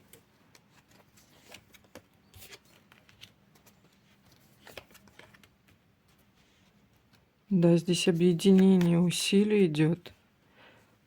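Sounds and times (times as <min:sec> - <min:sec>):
cards rustling and clicking: 0:00.0 - 0:07.3, 0:08.1 - 0:09.2.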